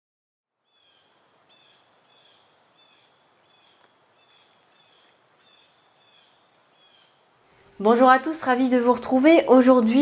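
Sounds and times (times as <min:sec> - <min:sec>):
faint bird chirping: 0:00.6 - 0:08.0
soft hiss: 0:00.6 - 0:10.0.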